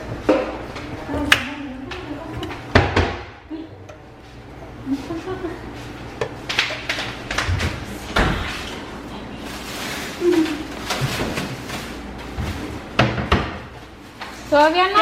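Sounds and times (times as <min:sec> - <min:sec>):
kitchen knocks and bangs: 0:00.0 - 0:03.4, 0:13.0 - 0:13.7.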